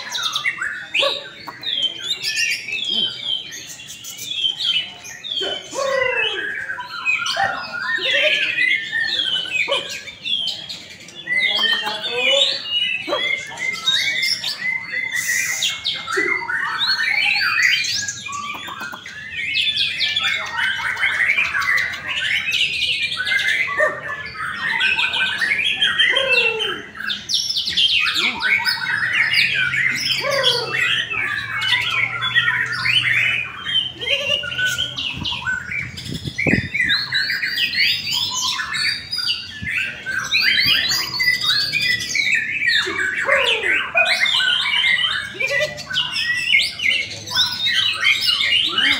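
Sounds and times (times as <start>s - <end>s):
caged birds singing: 0.0s - 48.9s.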